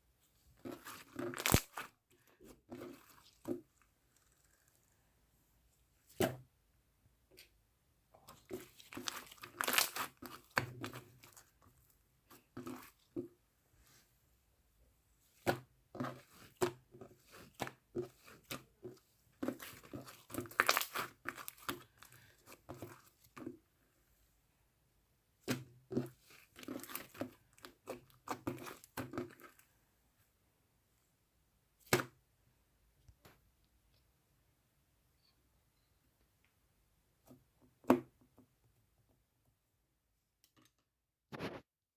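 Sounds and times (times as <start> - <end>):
slime squished by hand: 0.7 - 1.9, 8.3 - 11.4, 19.4 - 23.2
slime popping: 0.8 - 1.8, 8.6 - 11.4, 19.5 - 21.8.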